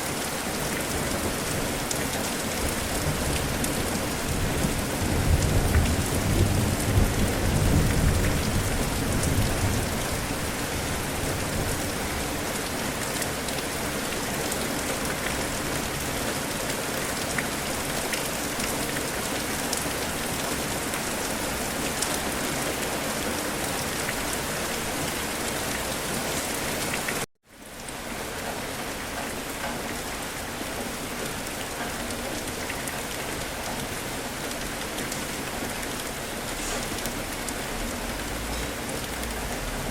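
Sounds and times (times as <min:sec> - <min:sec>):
heavy rain falling: 0:00.0 - 0:39.9
low thunder rumble: 0:03.0 - 0:11.8.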